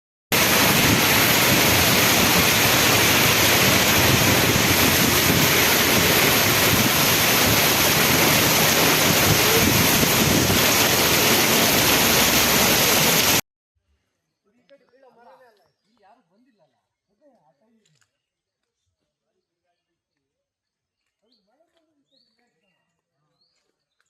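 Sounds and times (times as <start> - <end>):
heavy rain downpour: 0.3 - 13.4.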